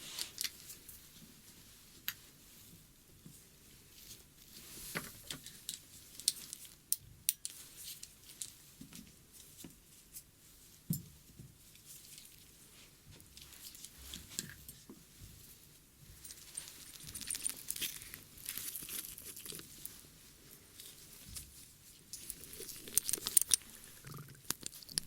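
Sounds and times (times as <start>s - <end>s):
soft scratching and crackling: 0.0s - 25.0s.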